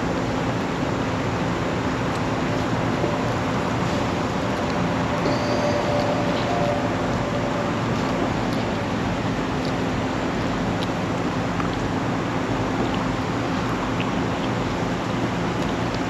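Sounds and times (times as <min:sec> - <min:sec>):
engine drone: 0:00.0 - 0:16.0
road and wind noise: 0:00.0 - 0:16.0.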